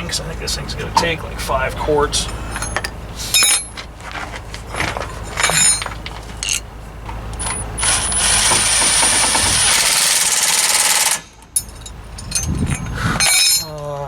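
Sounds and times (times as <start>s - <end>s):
metal parts clinking: 2.5s - 3.8s, 4.6s - 6.7s, 7.4s - 14.0s.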